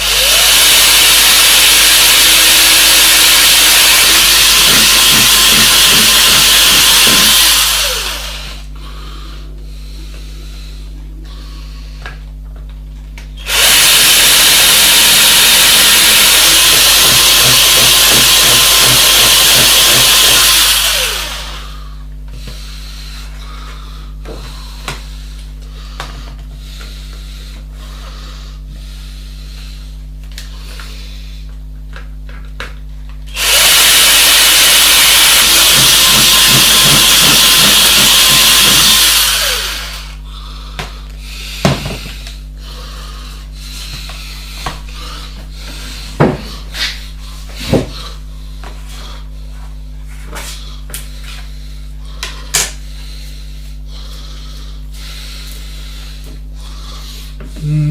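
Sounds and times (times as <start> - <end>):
low steady hum: 8.3 - 13.4.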